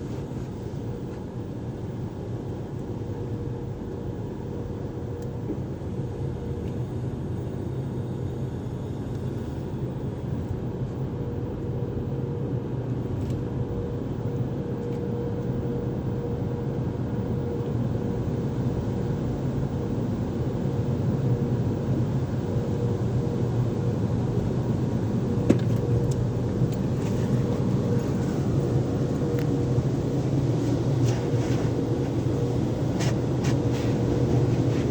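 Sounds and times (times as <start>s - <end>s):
car wash equipment rumble: 21.0s - 34.9s.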